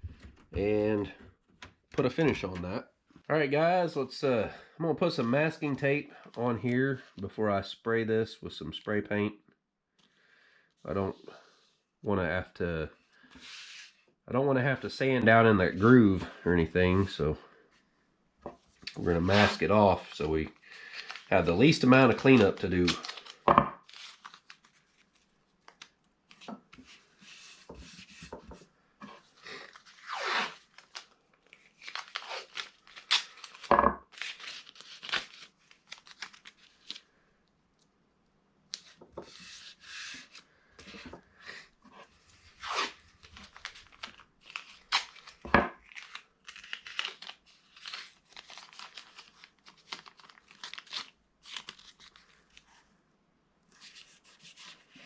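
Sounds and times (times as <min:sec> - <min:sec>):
masking tape ripping and crinkling: 0:18.8 - 0:25.9, 0:29.5 - 0:37.1, 0:42.4 - 0:52.7.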